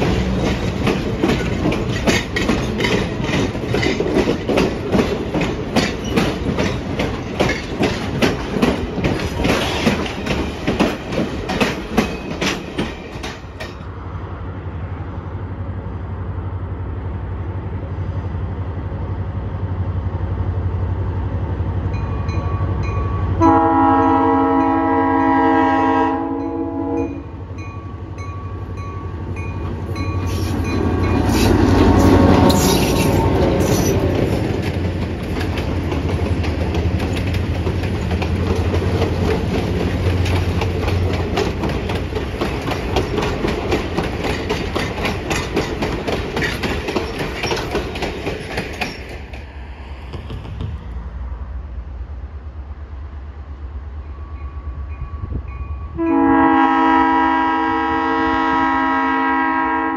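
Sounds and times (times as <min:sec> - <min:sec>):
train wheels clicking over rail joints: 0:00.0 - 0:14.0, 0:29.6 - 0:51.1
diesel locomotive engine hum: 0:00.0 - 0:59.9
locomotive horn blast: 0:23.4 - 0:27.3, 0:55.9 - 0:59.9.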